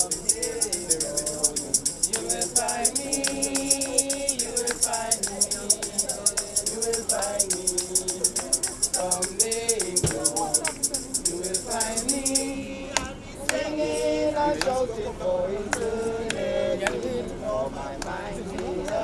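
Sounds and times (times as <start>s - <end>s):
shaken hand percussion rattling: 0.0s - 12.7s
voices singing a hymn: 0.0s - 19.0s.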